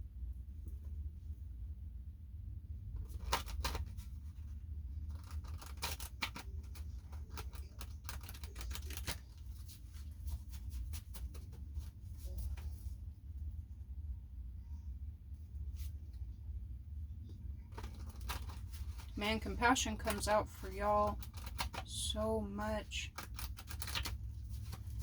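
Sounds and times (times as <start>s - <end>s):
cards being shuffled: 3.0s - 12.8s, 17.7s - 19.2s, 21.0s - 22.0s, 23.1s - 25.0s.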